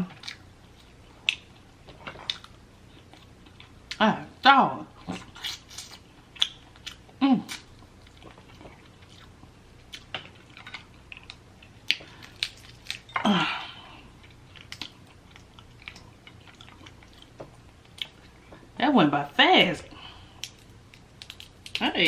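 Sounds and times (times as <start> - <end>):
chewing: 5.0 - 13.2, 14.0 - 18.7
crab shell clicks and snaps: 20.4 - 21.8.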